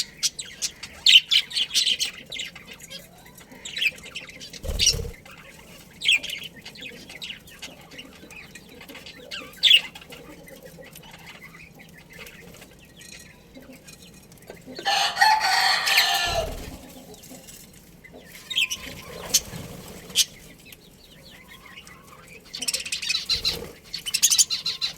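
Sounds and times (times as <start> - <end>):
rooster crowing: 14.8 - 16.8
high bird chirps: 18.2 - 24.9.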